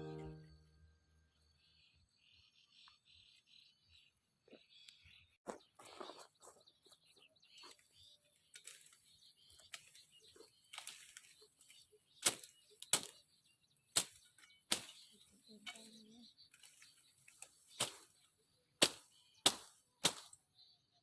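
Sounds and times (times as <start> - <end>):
leaves and branches rustling: 7.5 - 20.4
sharp snaps and cracks: 8.5 - 10.1, 10.7 - 13.3, 13.9 - 18.2, 18.8 - 20.4.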